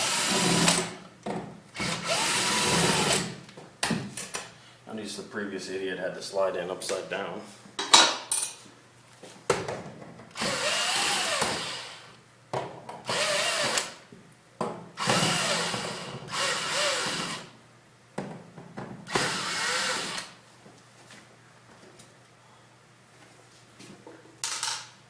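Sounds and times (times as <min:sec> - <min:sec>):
cordless drill motor bursts: 0:00.0 - 0:00.9, 0:01.8 - 0:03.3, 0:10.3 - 0:12.1, 0:13.1 - 0:14.0, 0:15.0 - 0:17.5, 0:19.1 - 0:20.4.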